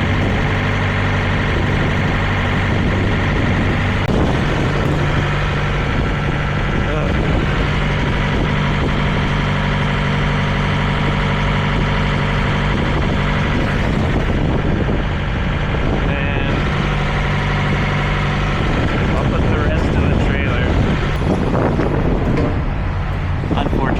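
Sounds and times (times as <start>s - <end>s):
truck engine idling: 0.0s - 23.9s.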